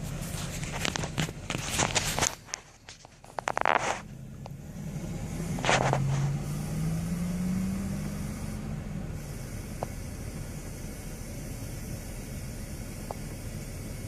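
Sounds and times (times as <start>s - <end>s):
truck engine pulling away: 3.3s - 14.0s
short hiss: 8.0s - 14.0s.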